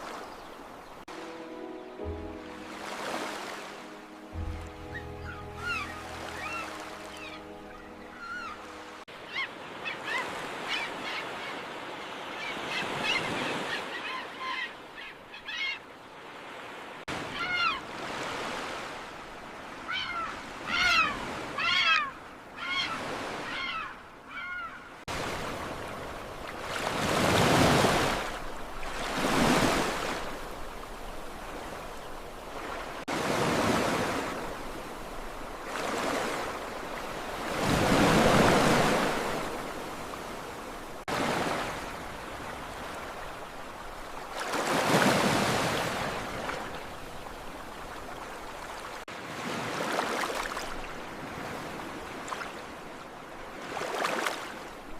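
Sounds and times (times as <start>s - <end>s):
birds chirping: 0.0s - 15.9s
sea waves breaking: 0.0s - 54.9s.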